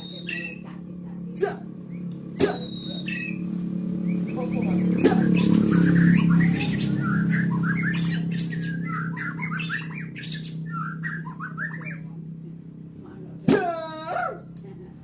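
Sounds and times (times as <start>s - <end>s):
bird chirping and squawking: 0.0s - 0.7s, 1.8s - 12.1s
low hum: 0.0s - 15.0s.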